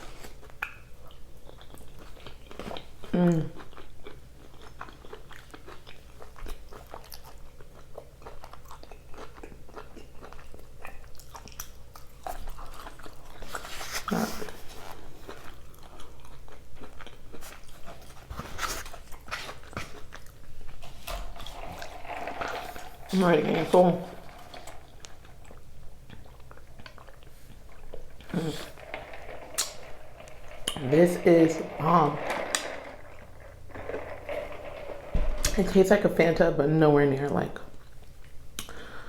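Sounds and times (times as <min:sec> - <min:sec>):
person chewing food: 0:00.0 - 0:20.8, 0:24.4 - 0:31.0
wet mouth clicks: 0:38.6 - 0:38.8.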